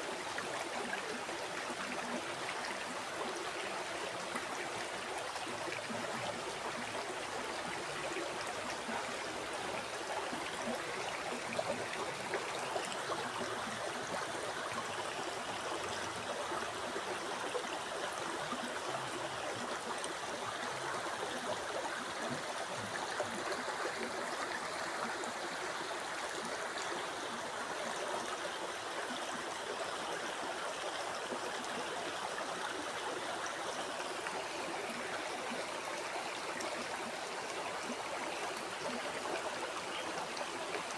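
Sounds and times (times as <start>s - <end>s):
river water flowing over rocks: 0.0s - 40.9s.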